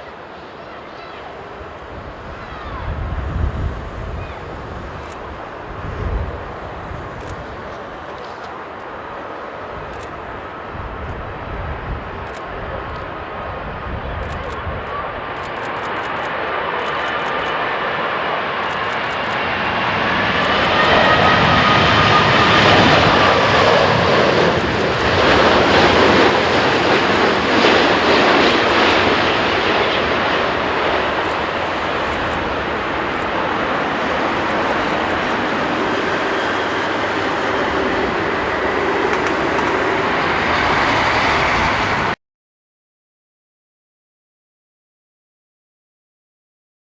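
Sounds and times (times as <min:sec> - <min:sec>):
jet airliner flying overhead: 0:00.0 - 0:42.2.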